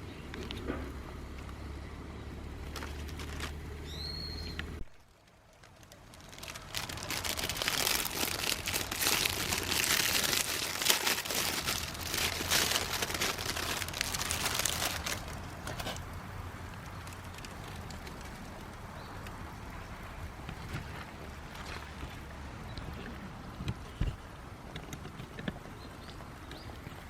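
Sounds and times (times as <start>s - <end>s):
crinkly material crumpling: 2.6s - 3.9s, 5.0s - 19.3s.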